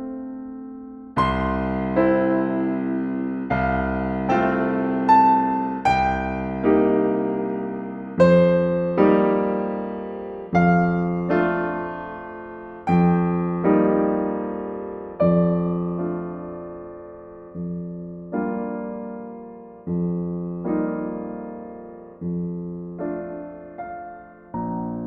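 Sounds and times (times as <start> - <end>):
slow solo piano chords: 0.0 - 25.0.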